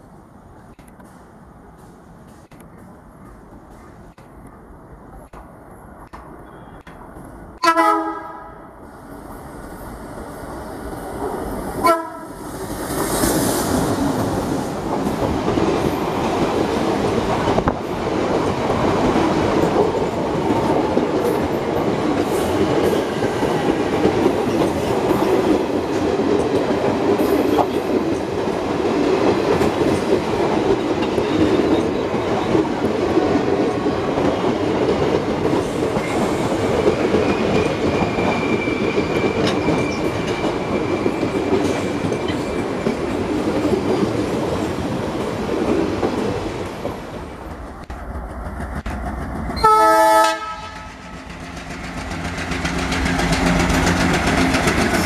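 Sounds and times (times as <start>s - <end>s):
train rumbling past: 0.0s - 55.0s
locomotive horn blasts: 7.6s - 8.5s, 11.8s - 12.3s, 49.6s - 50.8s.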